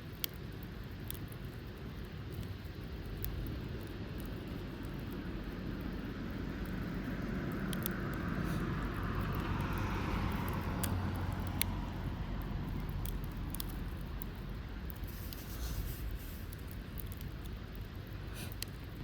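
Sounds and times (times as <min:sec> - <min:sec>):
distant engine rumble: 0:04.3 - 0:18.7.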